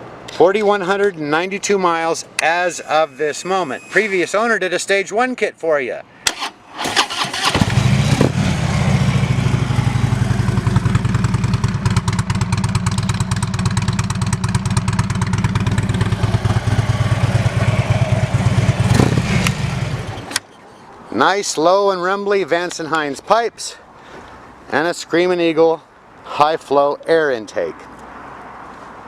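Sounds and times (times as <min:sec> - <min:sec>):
motorcycle engine starting and idling: 0:06.3 - 0:20.5.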